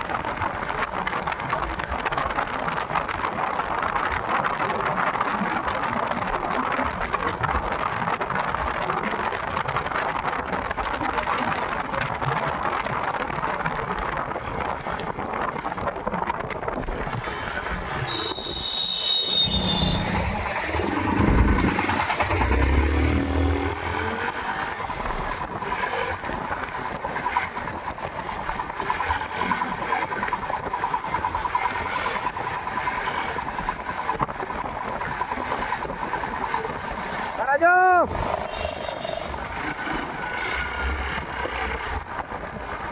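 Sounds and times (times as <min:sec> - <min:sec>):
road and wind noise: 0:00.0 - 0:42.9
low rush: 0:17.1 - 0:25.5
short high tone: 0:18.1 - 0:21.4.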